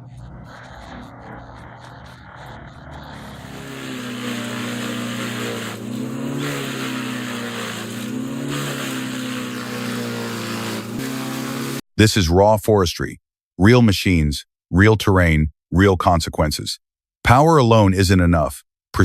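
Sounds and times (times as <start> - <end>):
engine running: 0.0 - 11.8.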